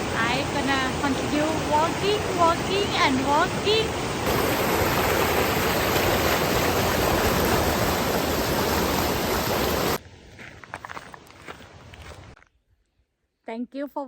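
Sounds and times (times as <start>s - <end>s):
creek rushing: 0.0s - 10.0s.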